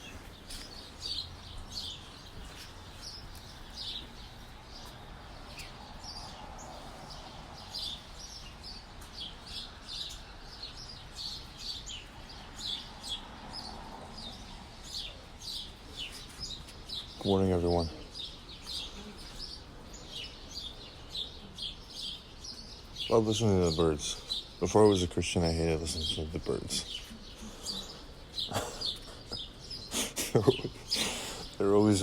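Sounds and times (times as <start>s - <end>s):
songbirds chirping: 0.0s - 32.0s.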